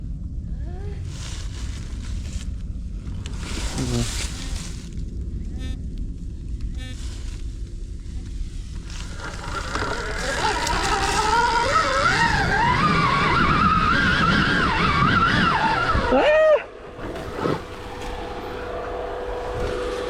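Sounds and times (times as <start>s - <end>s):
tyre and wind noise: 0.0s - 20.0s
electric motorbike motor whining: 8.6s - 20.0s.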